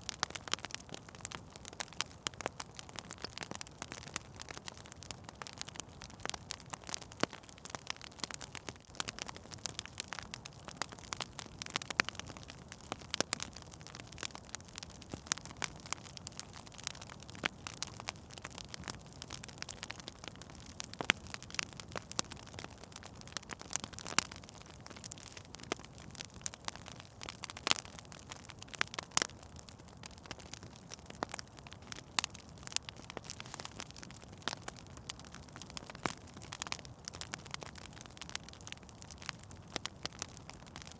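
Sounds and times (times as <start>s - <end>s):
fire crackling: 0.0s - 40.9s
sharp pops of fire: 32.2s - 37.7s.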